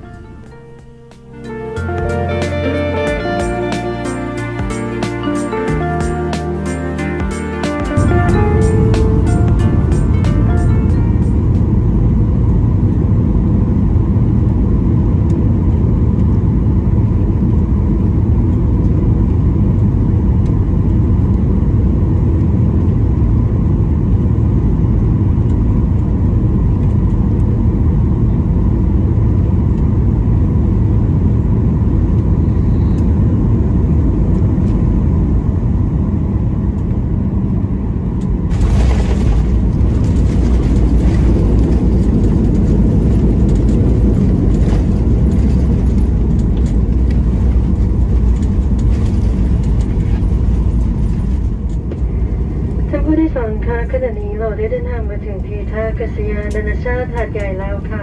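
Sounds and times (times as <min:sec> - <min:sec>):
airplane cabin engine rumble: 0:00.0 - 0:58.0
rushing air: 0:37.2 - 0:53.0.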